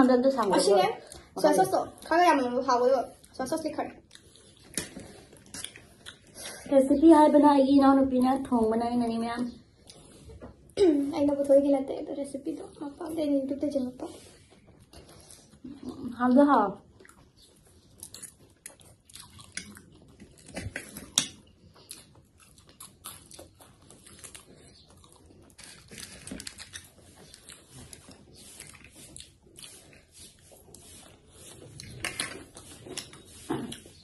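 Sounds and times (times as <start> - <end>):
chewing and mouth noises: 0.5 - 6.7, 14.2 - 34.0.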